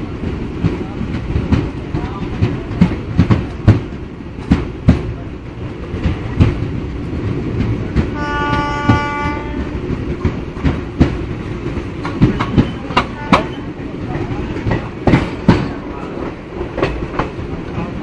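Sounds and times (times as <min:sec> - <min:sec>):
train rumble: 0:00.0 - 0:18.0
wheels clicking over rail joints: 0:00.2 - 0:18.0
train horn: 0:08.2 - 0:09.8.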